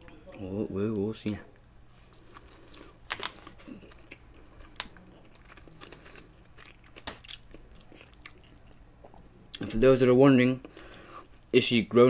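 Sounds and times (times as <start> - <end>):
person chewing: 1.5 - 9.7.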